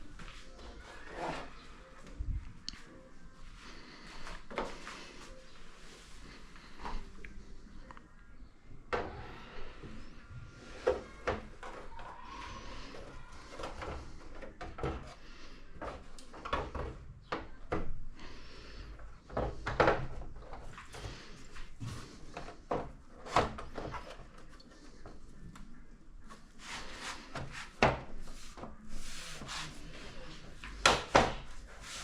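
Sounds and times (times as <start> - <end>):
rubbing and rustling: 26.2 - 32.0.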